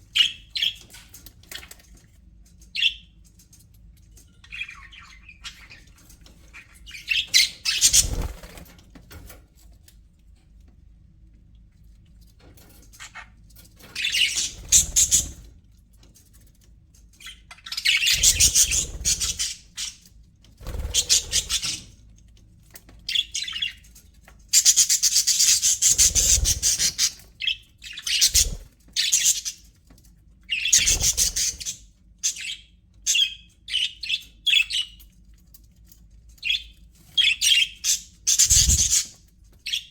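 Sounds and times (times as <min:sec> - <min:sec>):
budgerigars chirping and chattering: 0:00.1 - 0:01.7, 0:04.3 - 0:08.6, 0:12.6 - 0:15.6, 0:17.1 - 0:22.1, 0:23.0 - 0:29.8, 0:30.4 - 0:35.1, 0:36.3 - 0:39.9.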